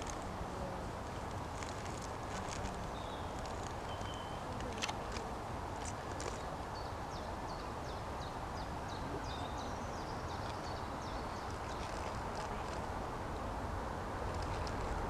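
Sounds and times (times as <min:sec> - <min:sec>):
small birds chirping: 0:01.6 - 0:07.6.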